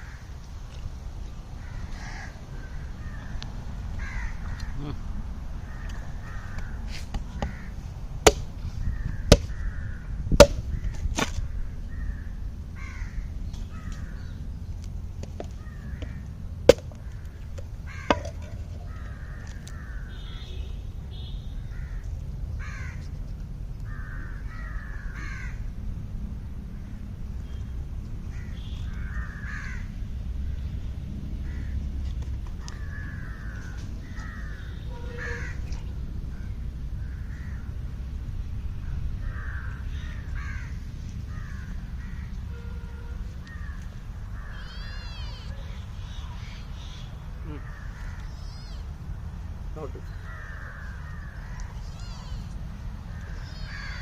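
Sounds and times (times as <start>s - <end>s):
steady low rumble: 0.0s - 20.0s
birds calling: 5.6s - 25.6s, 32.5s - 37.8s, 38.8s - 54.0s.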